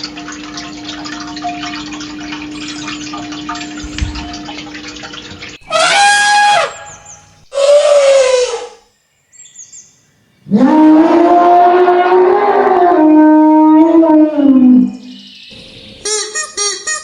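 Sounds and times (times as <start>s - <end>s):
animal calls falling in pitch: 5.6s - 8.8s.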